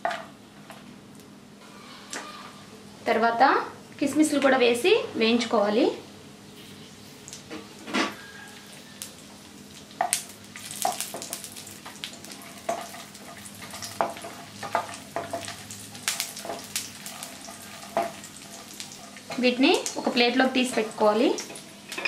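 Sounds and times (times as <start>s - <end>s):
nuts sizzling in hot ghee: 7.3s - 22.0s
spatula scraping and tapping pan: 12.6s - 19.6s.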